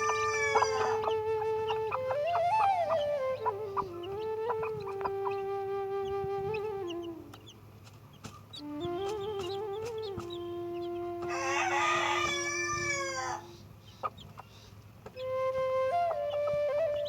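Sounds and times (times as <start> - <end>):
rooster crowing: 0.0 - 1.2, 11.3 - 13.5
slow flute melody: 0.0 - 7.6, 8.5 - 13.6, 15.2 - 17.0.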